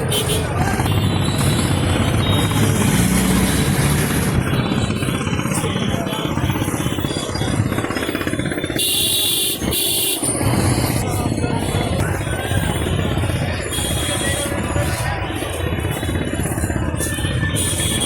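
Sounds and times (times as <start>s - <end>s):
engine running with fast pulse: 0.1s - 18.0s.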